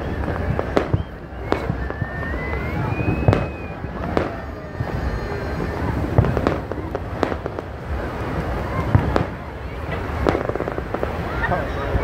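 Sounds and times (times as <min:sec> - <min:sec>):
firework whistle: 0:00.0 - 0:12.0
fireworks bangs: 0:00.0 - 0:12.0.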